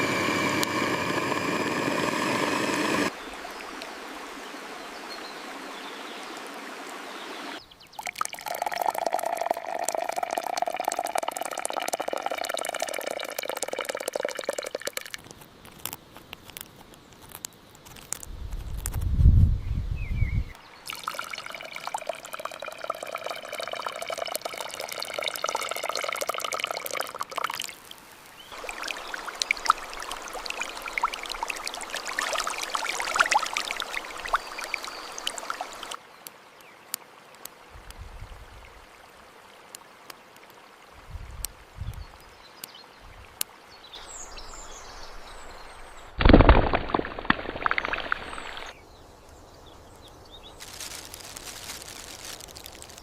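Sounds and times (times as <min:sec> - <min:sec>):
liquid pouring and trickling: 0:08.0 - 0:16.0, 0:20.9 - 0:36.0, 0:46.2 - 0:48.8, 0:50.6 - 0:53.0
handling noises with clicks: 0:15.1 - 0:19.2, 0:50.6 - 0:53.0.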